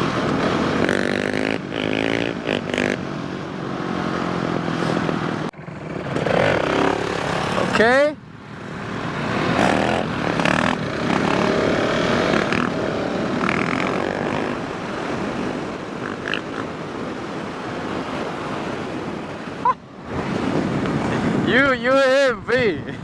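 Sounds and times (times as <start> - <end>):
steady rushing noise: 0.0 - 23.0
motorcycle engine running: 5.5 - 17.2.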